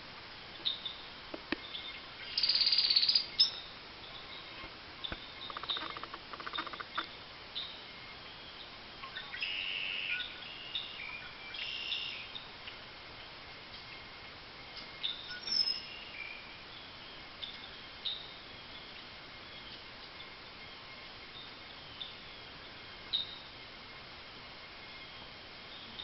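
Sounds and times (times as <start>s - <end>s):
bird chirps and buzzy trills: 0.6s - 12.8s.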